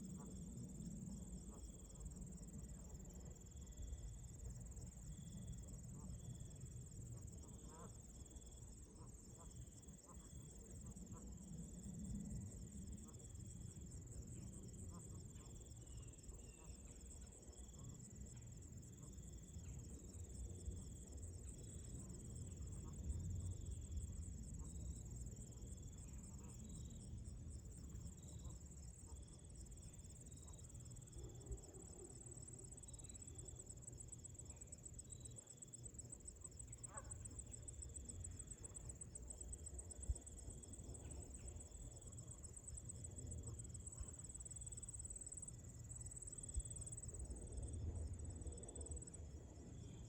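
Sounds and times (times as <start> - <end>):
low rumble of wind: 10.3 - 14.9, 17.1 - 35.2, 35.8 - 50.0
crickets trilling: 11.3 - 49.1.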